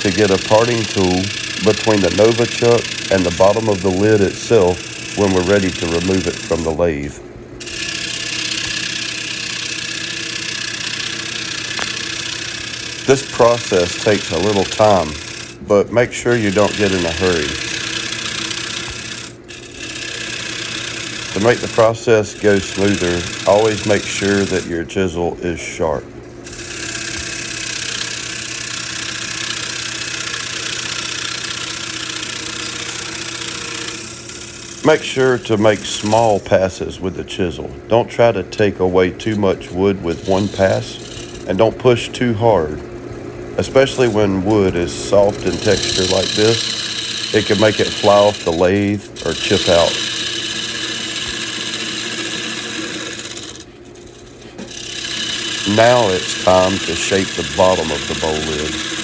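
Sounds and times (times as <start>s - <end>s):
lathe motor hum: 0.0s - 59.0s
gouge scraping wood: 45.1s - 53.6s, 54.6s - 59.0s.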